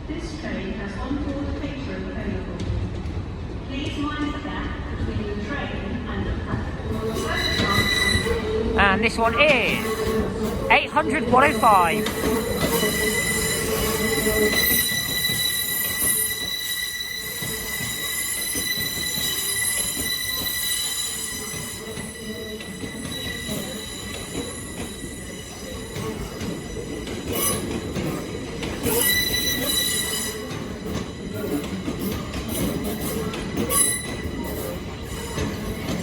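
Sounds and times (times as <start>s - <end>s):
train low rumble: 0.0s - 36.0s
train high-pitched whine: 6.8s - 36.0s.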